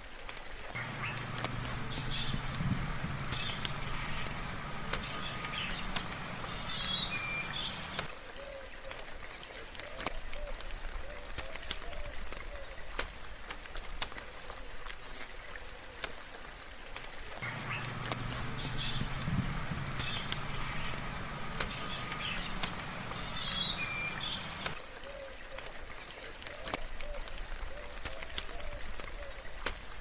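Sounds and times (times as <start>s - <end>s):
soft rain pattering: 0.0s - 30.0s
sharp drip ticks: 0.7s - 8.2s, 16.0s - 24.8s, 25.6s - 30.0s
low steady hum: 0.8s - 8.1s, 17.4s - 24.8s
small birds chirping: 0.8s - 8.1s, 17.4s - 25.5s.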